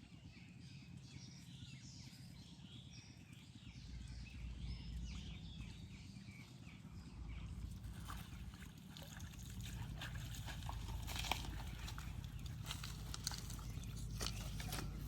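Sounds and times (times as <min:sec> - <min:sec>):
low rumbling noise: 0:03.8 - 0:15.0.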